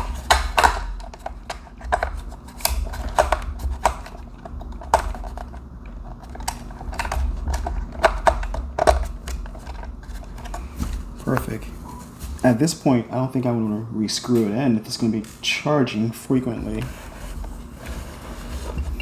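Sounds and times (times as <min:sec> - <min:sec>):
plastic clicks and knocks: 0:00.0 - 0:05.6, 0:06.2 - 0:11.5.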